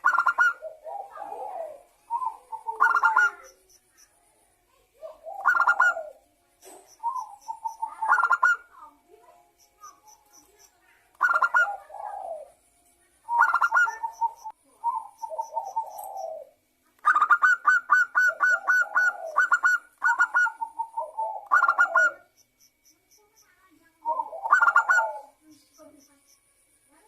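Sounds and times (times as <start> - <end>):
dove singing staccato coos: 0.0 - 3.7, 5.0 - 8.8, 11.2 - 12.6, 13.3 - 22.4, 24.0 - 25.4.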